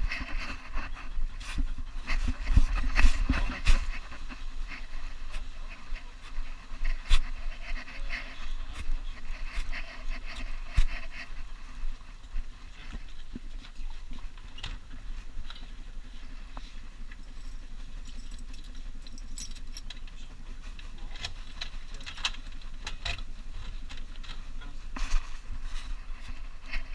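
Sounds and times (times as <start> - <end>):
collar tags jangling: 17.1 - 22.4.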